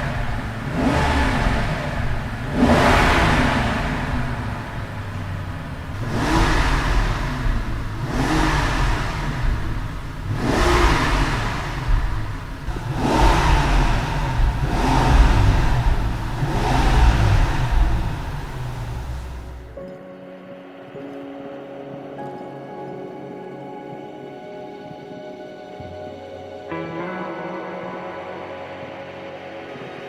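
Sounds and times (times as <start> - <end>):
car engine revving: 0.0 - 19.8.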